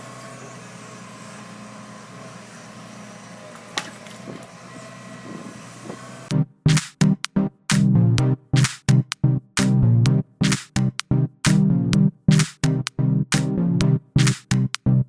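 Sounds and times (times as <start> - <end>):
mechanical engine-like hum: 0.0 - 6.4
electronic music with heavy beat: 6.3 - 15.0
sharp click: 14.2 - 14.8.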